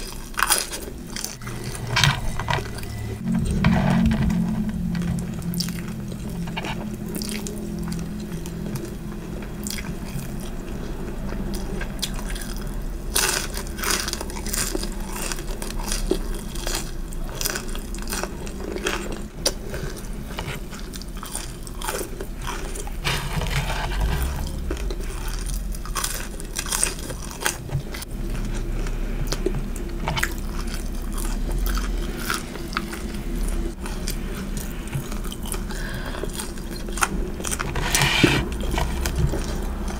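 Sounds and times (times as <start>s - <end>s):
chewing crunchy fried food: 0.0s - 1.8s, 5.4s - 39.9s.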